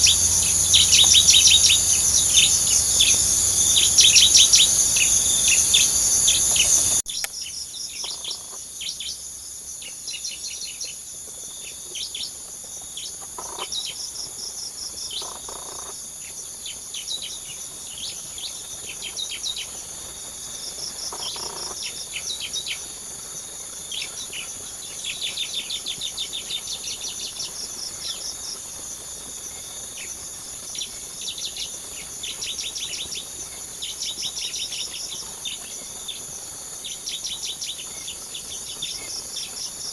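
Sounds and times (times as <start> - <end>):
loud rush of sound: 0.0 - 7.0
small birds chirping rapidly: 0.0 - 7.2
insects buzzing: 0.0 - 39.9.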